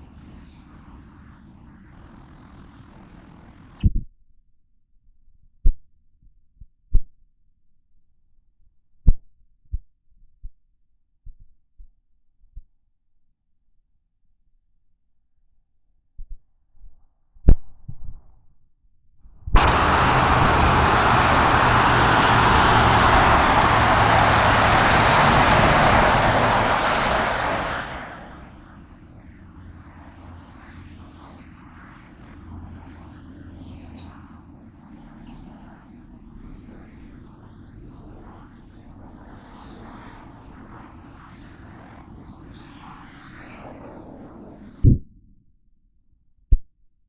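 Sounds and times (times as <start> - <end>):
low hum: 19.4 - 45.5
train rushing past: 19.6 - 29.6.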